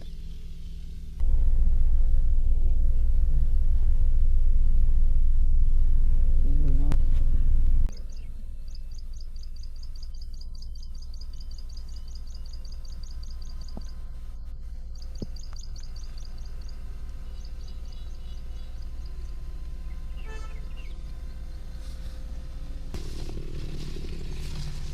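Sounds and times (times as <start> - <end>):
low rumble: 0.0 - 24.9
bird chirping: 7.9 - 22.0.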